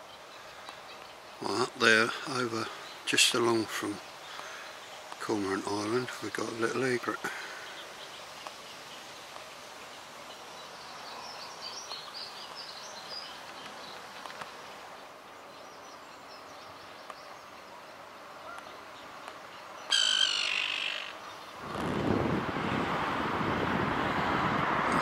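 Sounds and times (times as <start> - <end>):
faint bird chirps: 14.9 - 21.7
loud bird call: 19.8 - 21.9.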